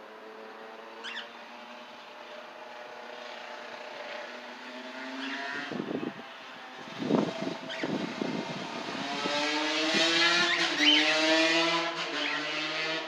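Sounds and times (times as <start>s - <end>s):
wind buffeting microphone: 5.7s - 10.4s.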